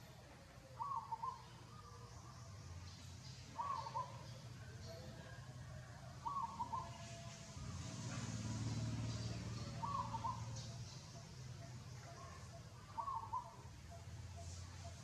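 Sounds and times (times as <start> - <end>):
bird warbling call: 0.8 - 1.5, 3.5 - 4.4, 6.2 - 7.2, 9.6 - 11.1, 12.0 - 15.0.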